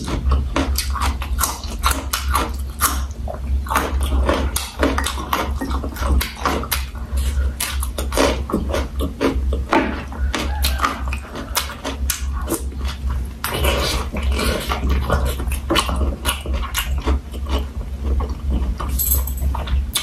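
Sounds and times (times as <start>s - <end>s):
wet chewing and mouth smacks: 0.0s - 18.9s, 19.6s - 20.0s
steady low hum: 0.0s - 20.0s.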